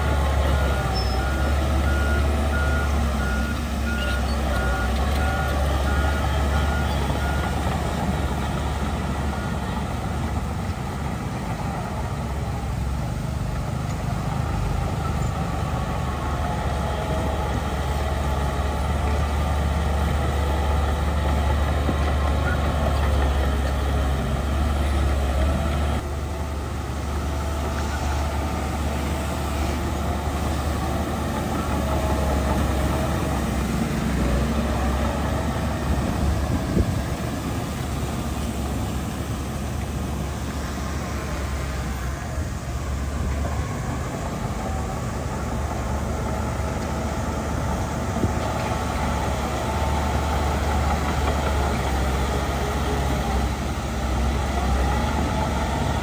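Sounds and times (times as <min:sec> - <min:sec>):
heavy diesel machinery rumbling: 0:00.0 - 0:56.0
reversing alarm beeping: 0:00.1 - 0:08.2.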